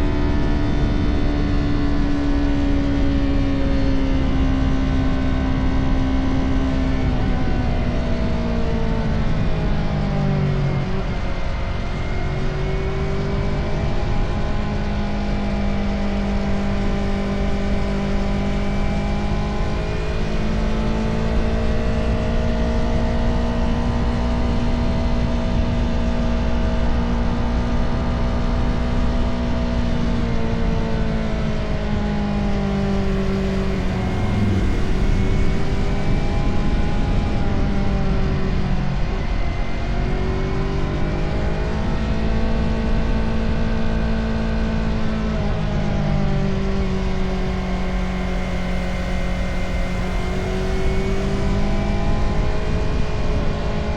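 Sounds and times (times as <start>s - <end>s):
low wind rush: 0.0s - 53.9s
motorcycle engine running: 13.6s - 39.4s.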